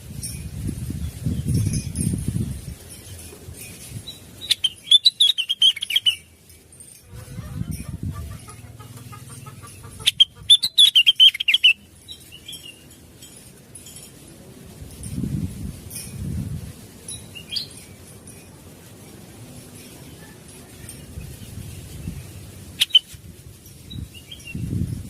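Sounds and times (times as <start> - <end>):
low rustling noise: 0.0 - 8.9, 11.8 - 25.0
bird warbling song: 3.1 - 6.4, 7.2 - 12.9, 17.2 - 18.0, 20.0 - 23.2, 23.8 - 24.8.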